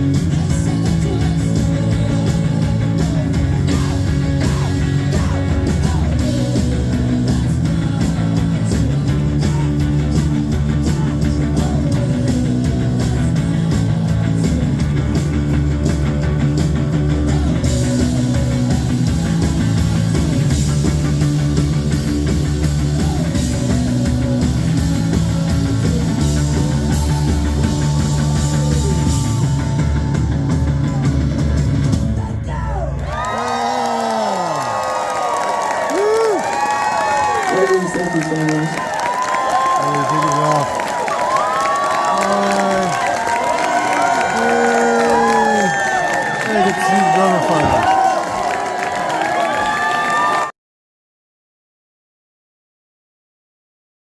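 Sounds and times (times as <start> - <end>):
person singing: 0.0 - 15.5, 22.9 - 31.2, 41.7 - 43.2, 43.9 - 47.8
live rock band playing: 0.0 - 32.4, 35.6 - 48.0.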